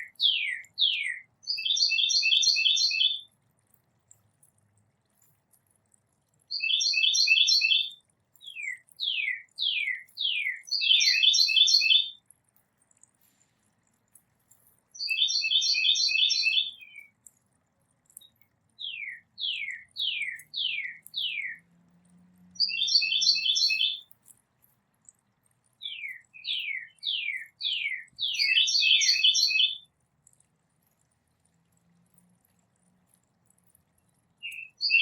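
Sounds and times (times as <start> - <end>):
songbird chattering: 8.5 - 12.2, 15.0 - 17.1, 22.6 - 24.0, 25.8 - 29.8, 34.4 - 35.0.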